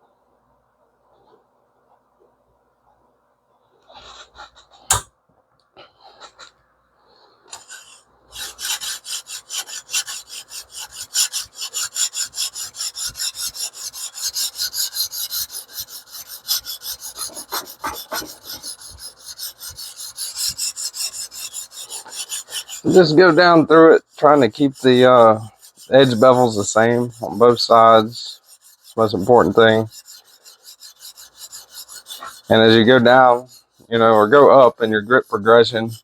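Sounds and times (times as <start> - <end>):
sharpening stone scraping blade: 7.5 - 36.0.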